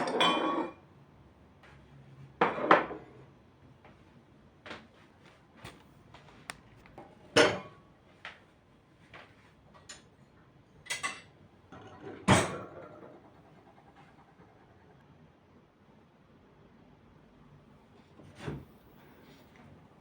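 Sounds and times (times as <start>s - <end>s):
dishes and utensils clattering: 0.0s - 0.8s, 7.3s - 7.8s, 10.9s - 13.1s.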